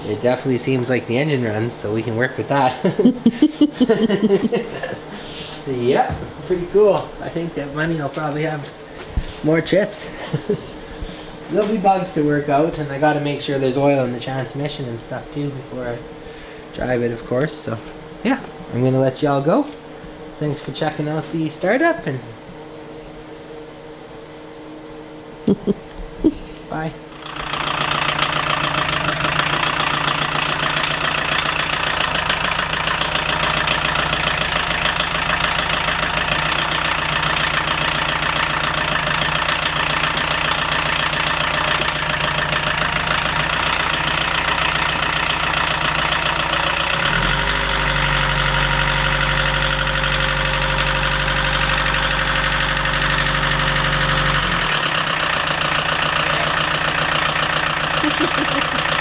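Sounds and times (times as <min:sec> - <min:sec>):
deep steady drone: 0:26.9 - 0:58.7
diesel engine idling: 0:27.1 - 0:59.0.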